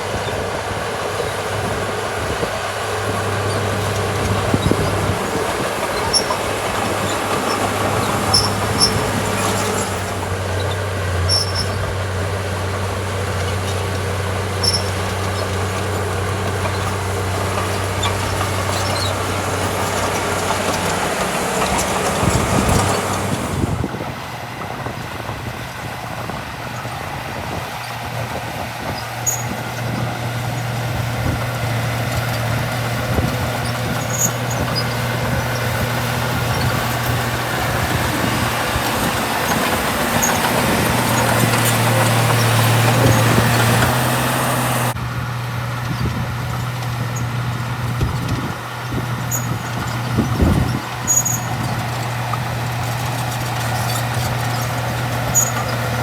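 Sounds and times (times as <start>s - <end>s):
bulldozer diesel engine running: 0.0s - 56.0s
short high squeaks: 3.1s - 11.9s, 14.5s - 23.8s, 28.9s - 45.0s, 48.9s - 56.0s.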